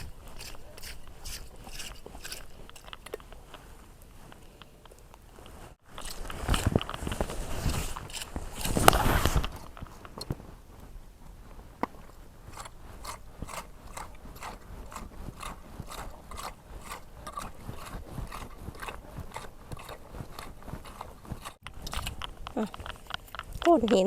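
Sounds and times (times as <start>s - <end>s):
scraper raking through sand: 5.8s - 9.8s, 12.4s - 21.6s.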